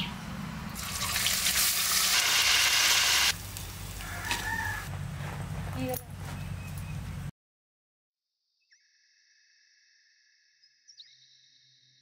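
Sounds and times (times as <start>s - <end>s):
food frying in oil: 0.8s - 4.0s.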